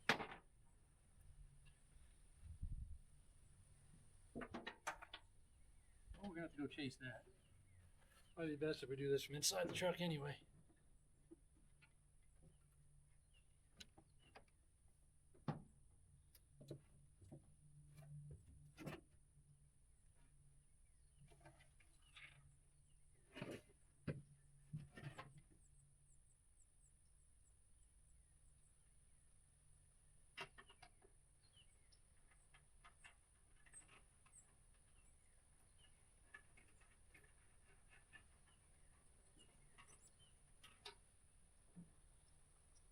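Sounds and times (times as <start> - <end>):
faint bird chirps: 30.6 - 32.6, 37.6 - 40.9.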